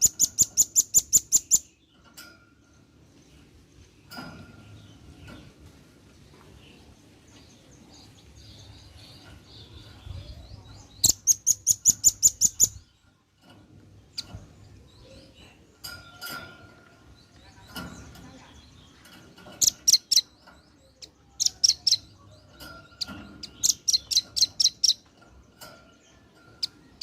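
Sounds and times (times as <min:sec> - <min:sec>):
bird calling high chirps: 0:00.0 - 0:01.9, 0:07.6 - 0:13.0, 0:19.5 - 0:25.1.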